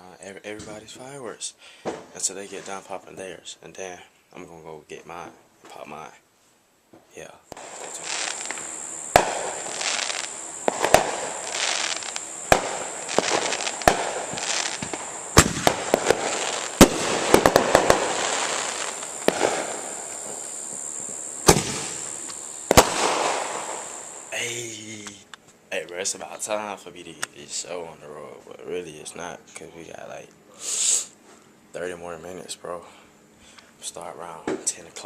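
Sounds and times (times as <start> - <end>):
fireworks bangs: 7.5 - 25.2
crackling fireworks pops: 7.5 - 25.5.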